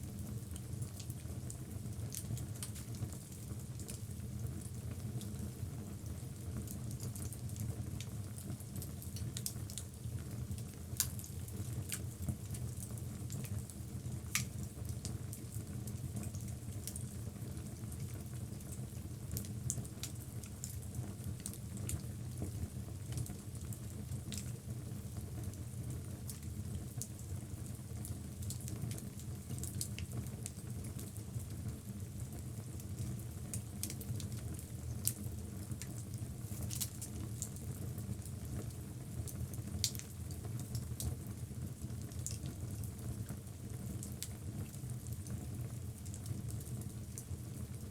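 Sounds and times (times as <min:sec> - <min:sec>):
low rumble of fire: 0:00.0 - 0:47.9
wood crackling and popping: 0:14.3 - 0:14.6, 0:35.8 - 0:37.5.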